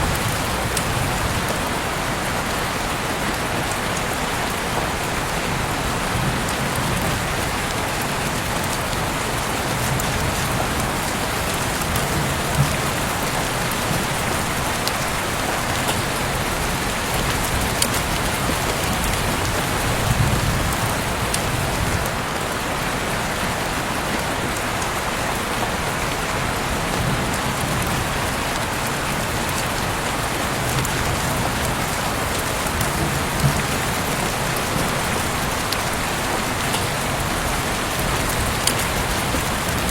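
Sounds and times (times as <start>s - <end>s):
heavy rain falling: 0.0s - 39.9s
raindrop impacts: 5.6s - 22.2s, 26.9s - 39.9s.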